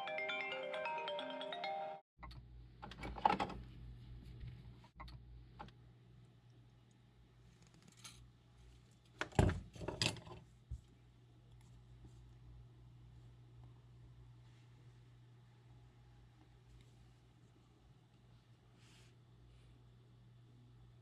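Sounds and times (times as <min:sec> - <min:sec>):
chiming music cue: 0:00.0 - 0:02.0
low electrical hum: 0:02.2 - 0:21.0.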